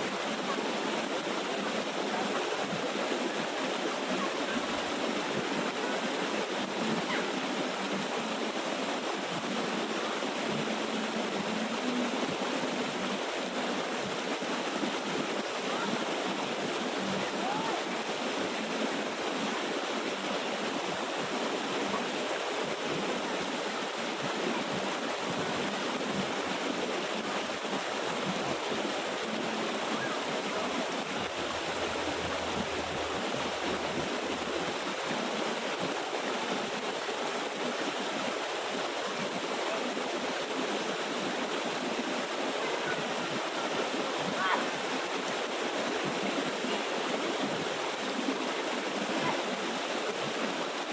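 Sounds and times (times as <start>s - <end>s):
waterfall rushing and splashing: 0.0s - 50.9s.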